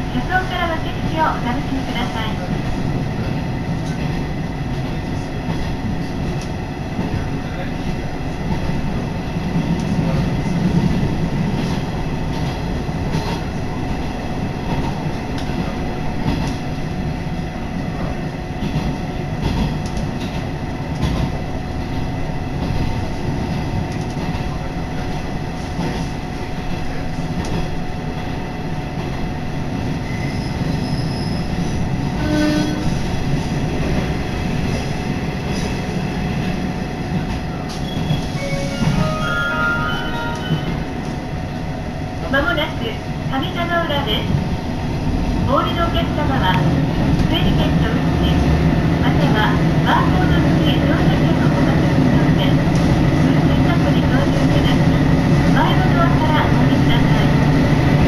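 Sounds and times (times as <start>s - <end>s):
train engine and wheels rumbling: 0.0s - 58.0s
rail-joint clicks: 3.8s - 7.3s, 9.6s - 10.3s, 14.6s - 16.6s, 18.6s - 21.4s, 23.5s - 24.6s
high-pitched tone: 38.3s - 40.9s.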